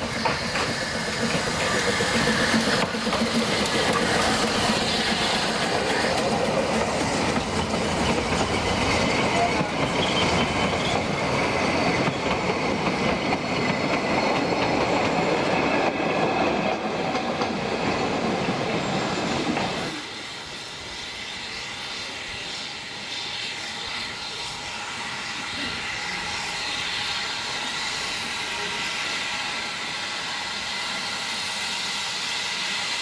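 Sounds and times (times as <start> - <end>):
train rolling on rails: 0.0 - 33.0.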